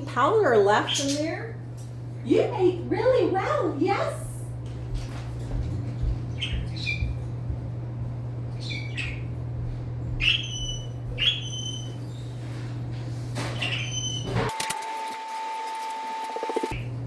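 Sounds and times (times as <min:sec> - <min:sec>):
steady low hum: 0:00.0 - 0:17.0
parrot squawking: 0:06.3 - 0:07.1, 0:08.6 - 0:09.3, 0:10.2 - 0:12.1, 0:13.6 - 0:14.3.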